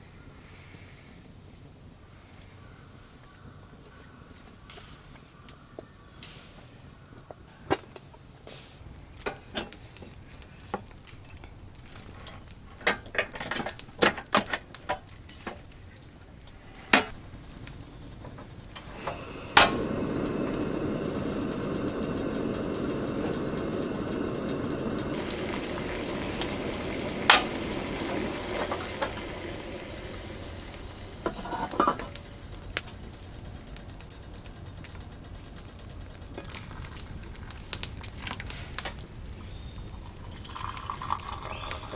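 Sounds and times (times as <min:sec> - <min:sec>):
food sizzling in a hot pan: 0:17.1 - 0:34.4, 0:35.2 - 0:41.9
kitchenware clinking: 0:22.8 - 0:32.4.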